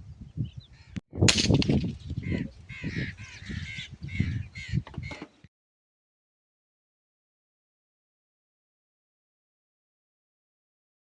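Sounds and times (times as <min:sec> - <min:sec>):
wind rumbling on microphone: 0:00.0 - 0:05.5
harsh bird calls: 0:00.4 - 0:01.0, 0:01.9 - 0:05.5.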